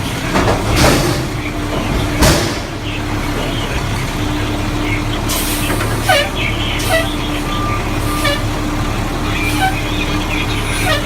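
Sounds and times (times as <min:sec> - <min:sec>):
metal clanks and bangs: 0:00.0 - 0:04.0
diesel engine running: 0:00.0 - 0:11.0.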